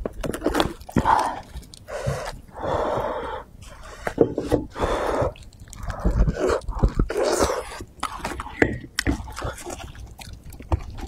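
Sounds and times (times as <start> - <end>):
chewing with mouth clicks: 0.0 - 2.5, 4.7 - 11.0.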